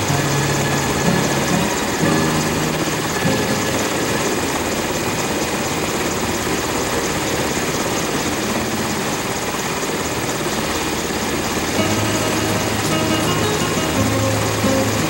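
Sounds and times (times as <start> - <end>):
helicopter rotor and engine: 0.0 - 15.0.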